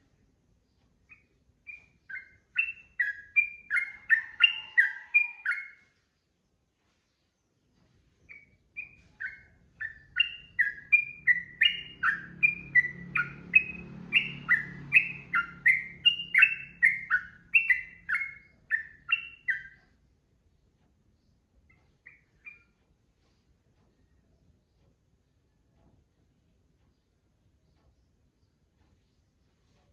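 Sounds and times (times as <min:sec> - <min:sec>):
bird singing bright notes: 0:01.0 - 0:06.0, 0:08.2 - 0:19.9, 0:21.2 - 0:22.8.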